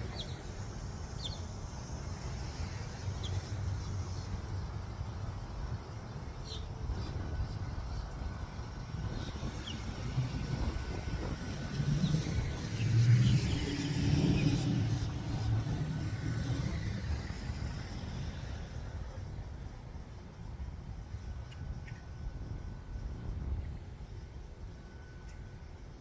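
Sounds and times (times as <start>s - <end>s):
vehicle engine rumble passing by: 0.0s - 19.6s.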